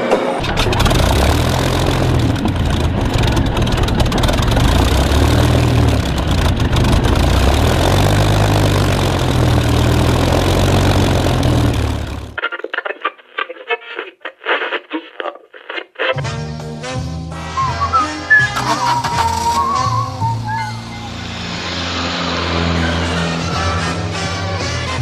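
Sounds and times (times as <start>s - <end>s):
piston engine idling: 0.4s - 12.4s.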